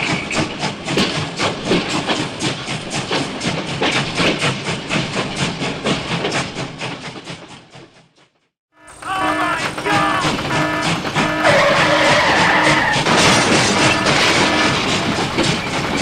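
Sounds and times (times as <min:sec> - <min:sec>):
fast mechanical clatter: 0:00.0 - 0:08.0, 0:08.8 - 0:16.0.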